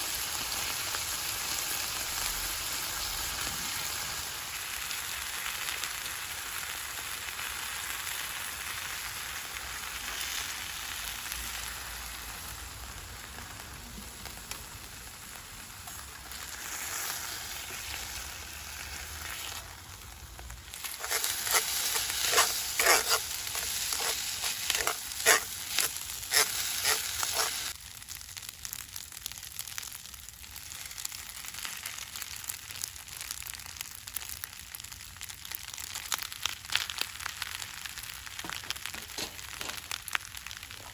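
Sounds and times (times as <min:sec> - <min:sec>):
food sizzling in a frying pan: 0:00.0 - 0:40.9
sharp clicks and scrapes: 0:20.8 - 0:27.7.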